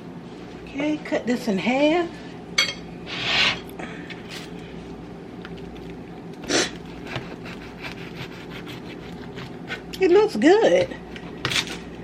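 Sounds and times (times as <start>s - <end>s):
knife scraping: 2.6s - 3.7s, 6.4s - 10.0s
knife cutting bread roll: 6.4s - 10.0s.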